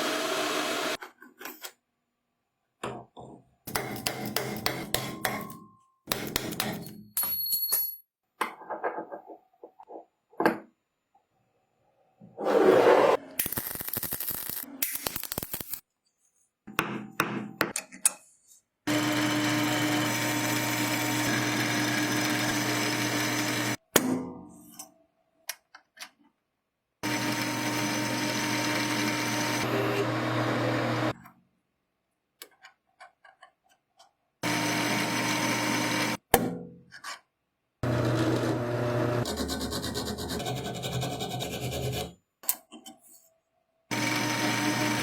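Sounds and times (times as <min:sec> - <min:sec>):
power tool motor grinding: 0:00.0 - 0:01.0, 0:18.9 - 0:23.8, 0:27.0 - 0:31.2, 0:34.4 - 0:36.2, 0:37.8 - 0:39.6, 0:43.9 - 0:45.0.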